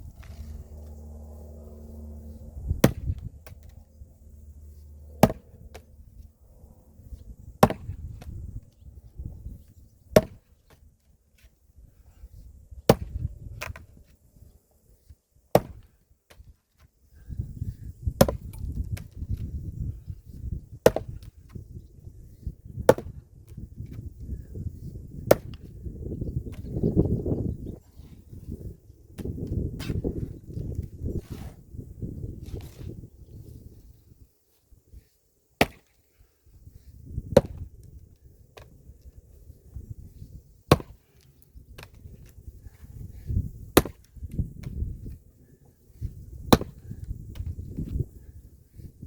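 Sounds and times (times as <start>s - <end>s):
low rumble: 0.0s - 9.6s
low steady hum: 0.0s - 16.3s
axe chopping firewood: 2.8s - 3.7s, 5.1s - 5.9s, 7.6s - 8.4s, 10.1s - 10.8s, 12.9s - 13.8s, 15.5s - 16.5s, 18.2s - 19.2s, 20.8s - 21.6s, 22.9s - 23.2s, 25.2s - 25.7s, 29.2s - 30.1s, 35.6s - 36.0s, 37.2s - 37.7s, 40.7s - 42.3s, 43.8s - 44.9s, 46.4s - 47.6s.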